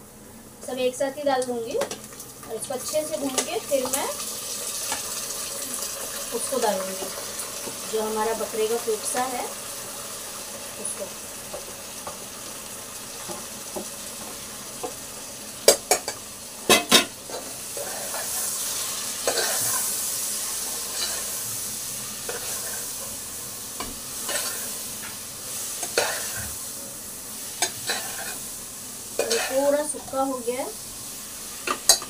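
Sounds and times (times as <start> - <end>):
food sizzling in hot oil: 0.6 - 32.0
metal spoon scraping pot: 29.2 - 29.6.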